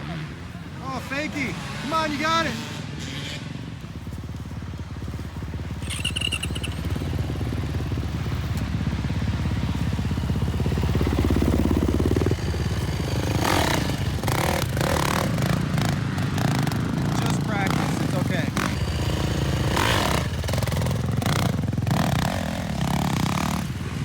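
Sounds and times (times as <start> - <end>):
dirt bike engine running: 0.0 - 24.0.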